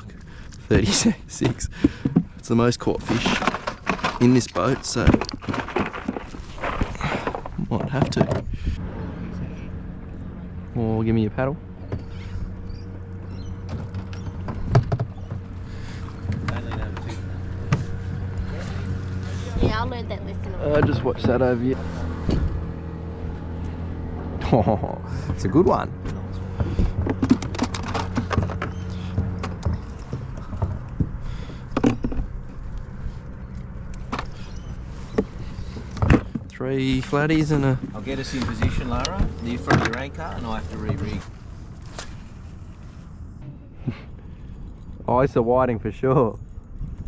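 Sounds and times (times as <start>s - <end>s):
knocks and creaks of gear: 0.0s - 8.8s, 11.6s - 19.8s, 25.0s - 47.0s
steady low hum: 0.0s - 47.0s
knocks and clicks of fishing gear: 26.6s - 32.8s.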